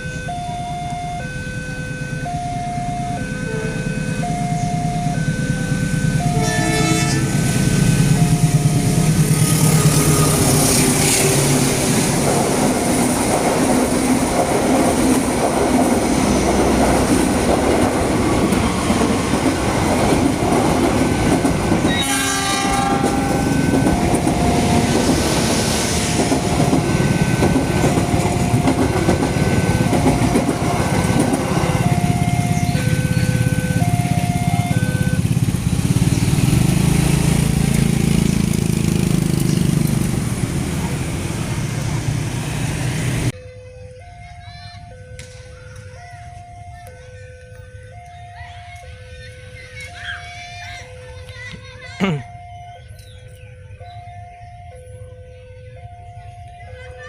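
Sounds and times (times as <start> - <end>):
train rumble and wheel clatter: 1.0 - 43.4
train horn blast: 6.2 - 8.1, 21.8 - 23.8.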